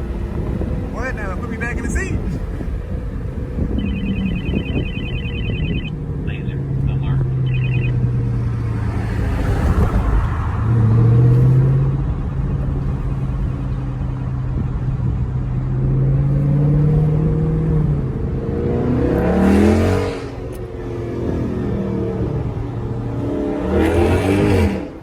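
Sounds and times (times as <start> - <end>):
car exhaust under load: 0.0 - 25.0.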